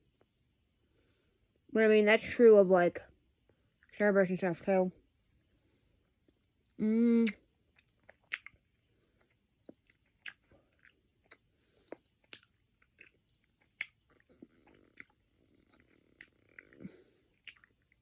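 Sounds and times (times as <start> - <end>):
person chewing candy: 6.2 - 18.0.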